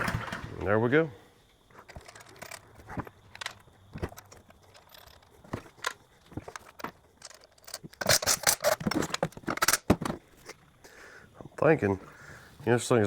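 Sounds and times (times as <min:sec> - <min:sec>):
rattling clatter: 0:01.7 - 0:10.2
handling clicks and knocks: 0:01.7 - 0:10.7.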